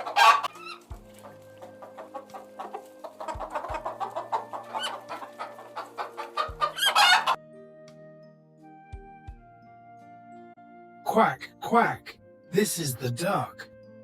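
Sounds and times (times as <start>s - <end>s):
chickens clucking: 0.0s - 7.4s.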